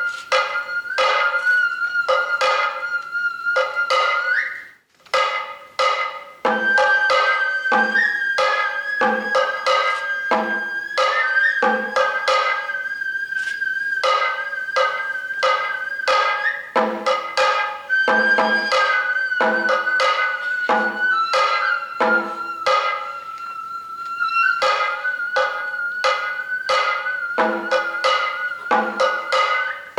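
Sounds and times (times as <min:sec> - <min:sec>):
bamboo flute melody: 0:00.0 - 0:29.9
drums beating: 0:00.0 - 0:29.9.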